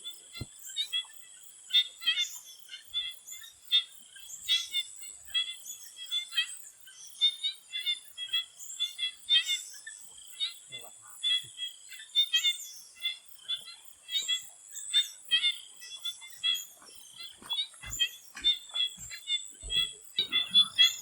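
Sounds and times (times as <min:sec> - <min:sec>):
frogs calling: 0:00.0 - 0:21.0.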